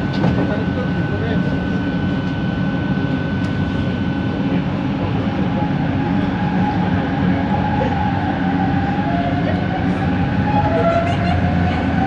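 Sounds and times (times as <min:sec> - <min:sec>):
train rumble from inside: 0:00.0 - 0:12.0.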